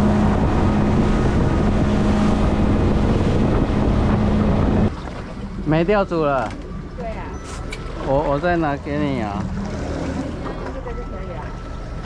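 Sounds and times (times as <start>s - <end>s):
wind on microphone: 0.0s - 5.2s
boat engine humming: 0.0s - 12.0s.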